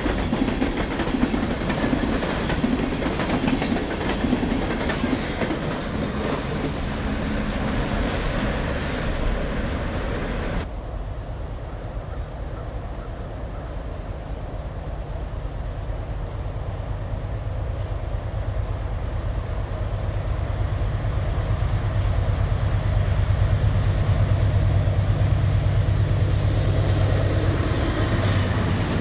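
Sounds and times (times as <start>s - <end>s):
train wheels clickety-clack: 0.0s - 10.7s, 18.4s - 29.0s.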